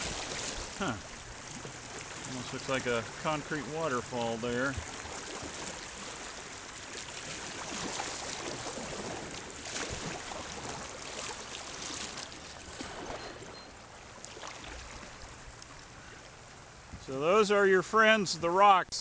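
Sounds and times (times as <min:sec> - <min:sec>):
water rushing over rocks: 0:00.0 - 0:13.4
small water splashes: 0:00.0 - 0:17.2.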